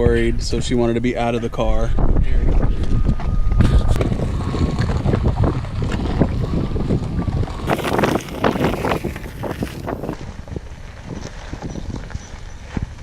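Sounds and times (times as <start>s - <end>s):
wind buffeting microphone: 0.0s - 13.0s
crunching and crackling: 7.7s - 11.0s.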